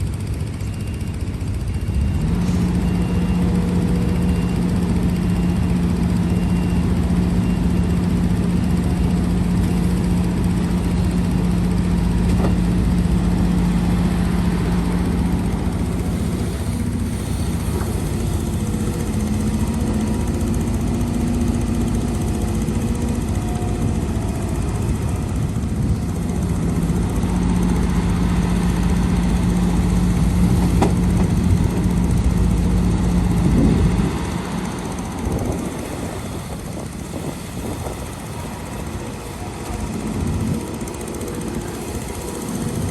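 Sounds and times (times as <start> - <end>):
heavy diesel engine humming: 0.0 - 42.9.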